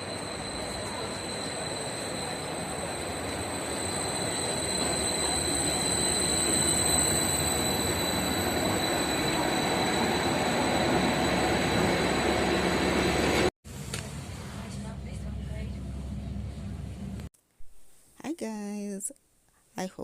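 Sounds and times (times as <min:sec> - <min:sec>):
thin high whine: 0:00.0 - 0:13.5
train rumbling on rails: 0:00.0 - 0:13.5, 0:14.1 - 0:17.3.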